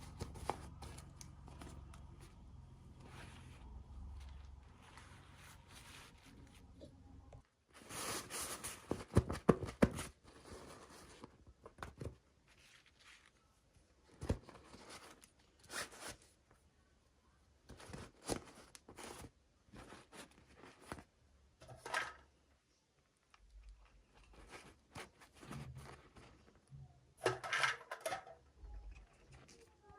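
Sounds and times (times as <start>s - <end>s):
packaging rustling: 0.0s - 6.7s.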